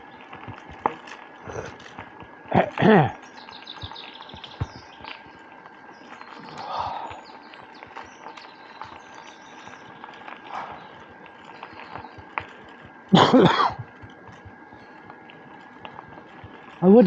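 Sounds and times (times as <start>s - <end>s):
bicycle rolling on rough path: 0.0s - 17.0s
man coughing: 2.5s - 3.2s, 13.2s - 13.8s.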